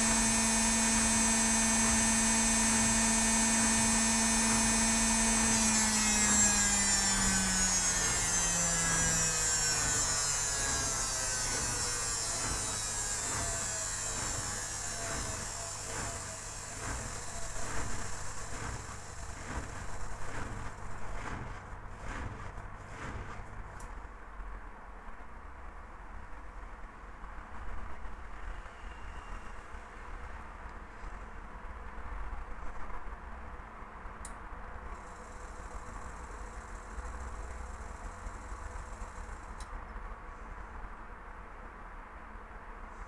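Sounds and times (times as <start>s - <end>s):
drum turning pulses: 0.0s - 24.0s, 34.9s - 39.6s
washing machine spinning whine: 0.0s - 24.0s, 34.7s - 41.0s.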